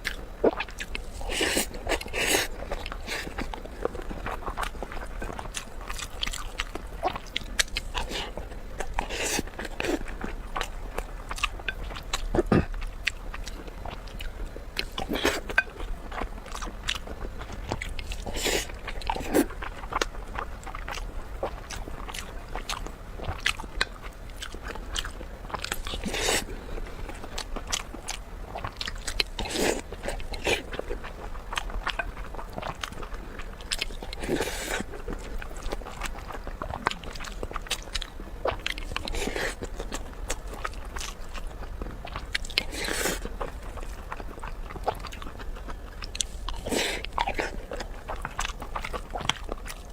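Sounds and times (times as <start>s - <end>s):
person chewing crunchy food: 0.0s - 49.9s.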